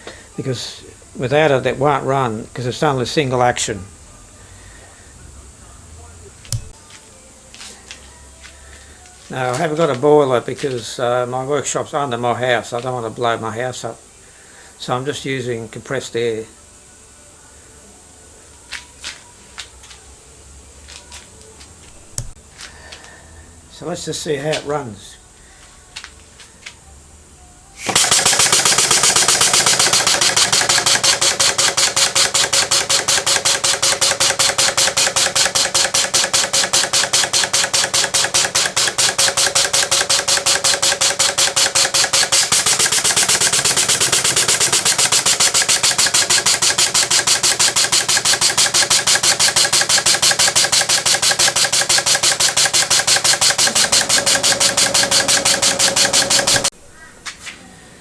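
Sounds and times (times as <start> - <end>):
model steam engine exhaust puffs: 0.0 - 3.1, 27.8 - 56.7
person talking: 9.2 - 14.0, 23.7 - 25.2.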